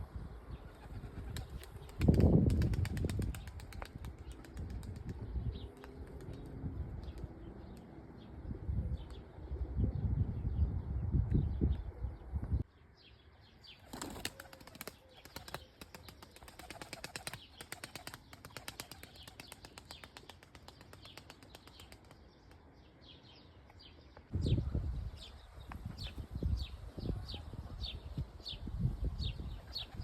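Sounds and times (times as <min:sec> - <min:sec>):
pigeon wings flapping: 0:00.8 - 0:06.6, 0:13.8 - 0:22.2.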